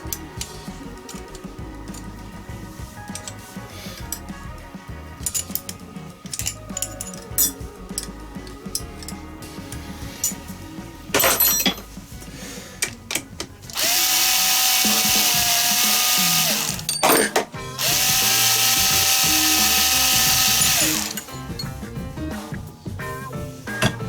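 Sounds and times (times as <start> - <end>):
power tool motor running: 13.7 - 16.9, 17.8 - 21.4.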